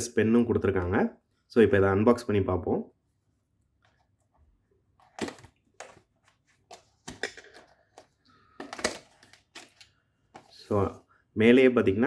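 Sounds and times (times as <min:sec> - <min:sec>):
packaging clicks and scrapes: 0:05.0 - 0:10.6.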